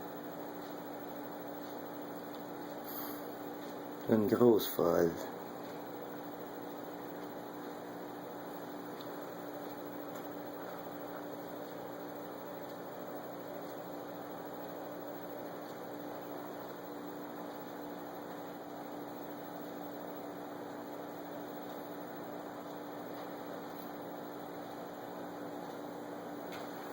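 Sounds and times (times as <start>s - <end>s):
electrical hum: 0.0s - 26.9s.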